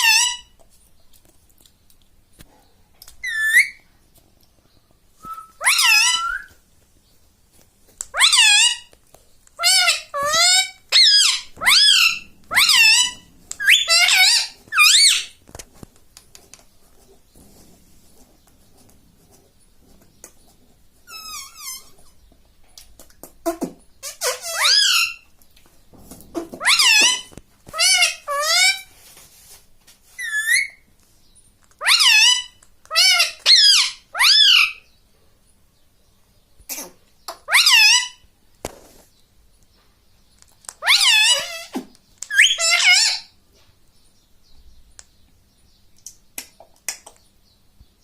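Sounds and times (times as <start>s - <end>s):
parakeet shrill calls: 0.0s - 0.5s, 3.2s - 3.8s, 5.3s - 6.5s, 8.1s - 8.9s, 9.6s - 15.4s, 21.1s - 21.9s, 24.0s - 25.2s, 26.6s - 28.9s, 30.2s - 30.8s, 31.8s - 34.9s, 37.5s - 38.2s, 40.8s - 43.4s.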